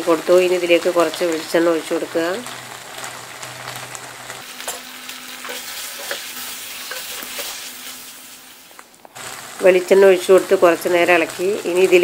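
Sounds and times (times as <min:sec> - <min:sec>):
meat sizzling in a pan: 0:00.0 - 0:12.0
wooden spatula scraping a pan: 0:04.6 - 0:08.2.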